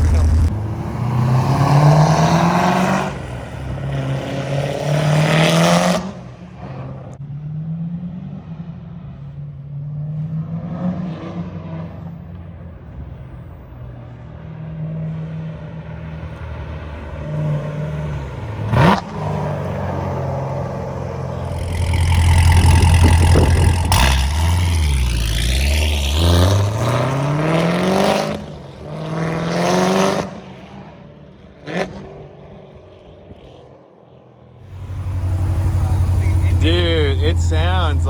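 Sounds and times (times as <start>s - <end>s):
exhaust cracks: 0.0s - 1.1s, 21.2s - 26.7s, 34.7s - 38.0s
car engine revving: 0.0s - 7.1s, 16.9s - 30.4s, 34.7s - 38.0s.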